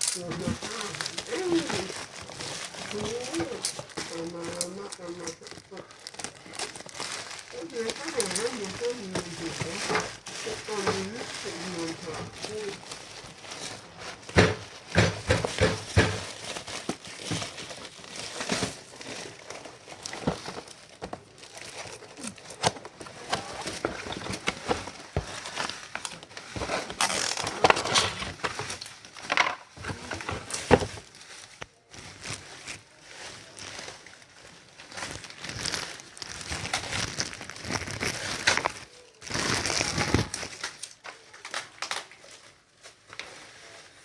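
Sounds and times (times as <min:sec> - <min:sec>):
packaging rustling and crinkling: 0:00.0 - 0:44.0
knocks on packaging: 0:14.3 - 0:16.4.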